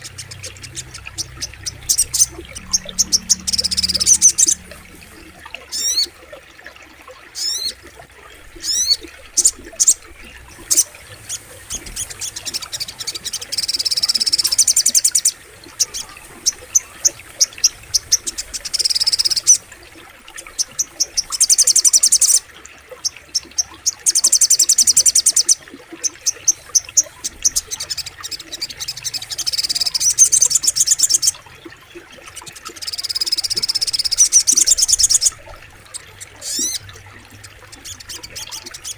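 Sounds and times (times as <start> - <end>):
songbird trilling: 0.0 - 6.1
faint flowing water: 0.0 - 38.9.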